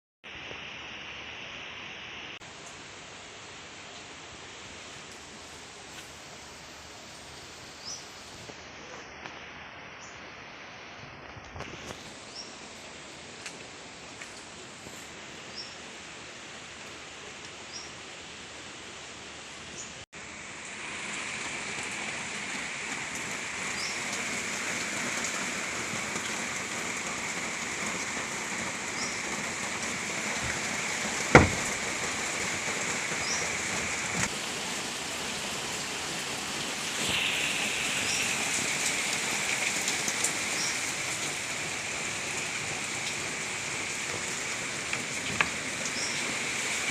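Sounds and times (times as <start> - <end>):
steady rain falling: 0.3 - 46.9
sharp knock: 31.3 - 31.8.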